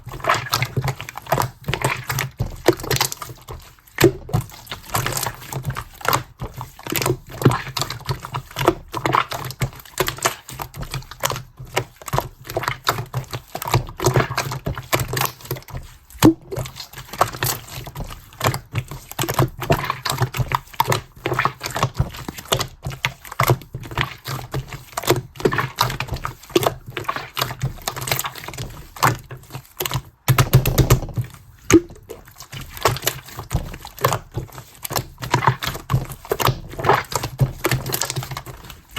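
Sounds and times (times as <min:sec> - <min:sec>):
dull squelch: 0:00.0 - 0:38.9
hands squishing slime: 0:00.0 - 0:38.9
air bubble pops: 0:16.2 - 0:16.6, 0:30.4 - 0:32.2.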